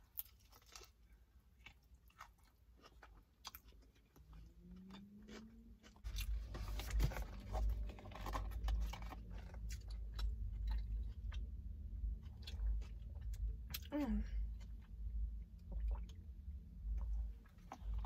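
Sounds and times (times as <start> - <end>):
crunchy chewing: 0.0 - 13.9.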